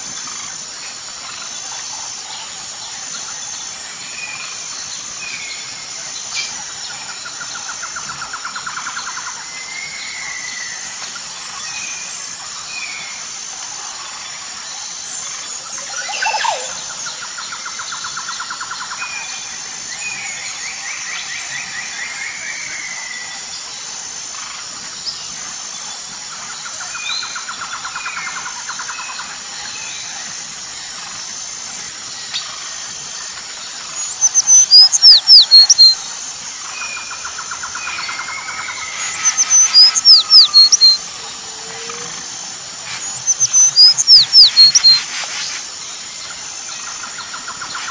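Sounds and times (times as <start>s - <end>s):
steady high hiss: 0.0s - 47.9s
birds chirping and trilling: 15.8s - 16.9s, 34.0s - 45.8s
sharp falling bird calls: 36.8s - 45.7s.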